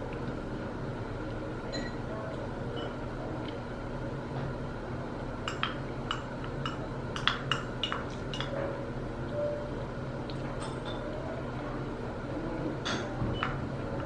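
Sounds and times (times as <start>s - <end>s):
low steady hum: 0.0s - 14.0s
dishes clinking on ceramic: 5.5s - 8.8s, 12.8s - 13.6s.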